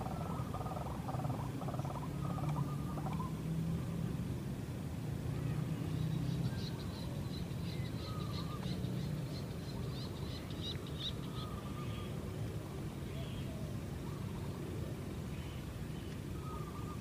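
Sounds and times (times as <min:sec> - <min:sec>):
low outdoor hum: 0:00.0 - 0:17.0
small birds chirping: 0:05.5 - 0:12.2.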